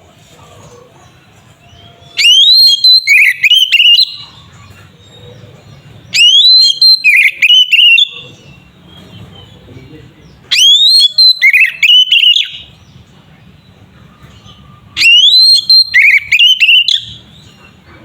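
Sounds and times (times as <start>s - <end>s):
bird singing whistled phrases: 1.7s - 4.4s, 6.1s - 8.6s, 10.5s - 12.7s, 15.0s - 17.5s.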